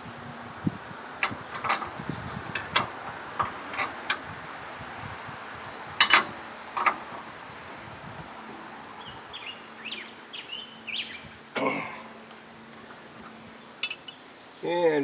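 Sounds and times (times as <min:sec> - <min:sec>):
sharp metal clicks: 0:02.6 - 0:04.3, 0:13.8 - 0:14.2
small bird chirping: 0:09.0 - 0:11.4.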